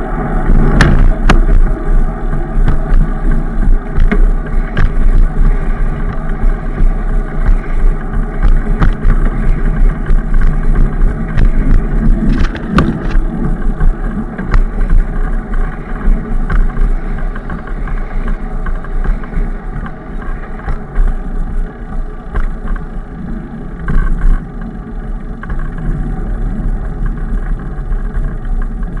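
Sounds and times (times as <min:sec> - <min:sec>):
road rumble: 0:00.0 - 0:29.0
wind buffeting microphone: 0:00.0 - 0:29.0
clicks and rattles: 0:02.6 - 0:21.2.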